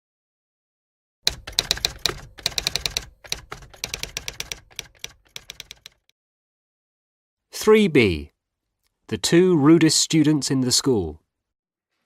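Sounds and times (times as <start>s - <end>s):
rapid irregular clicking: 1.3s - 6.1s.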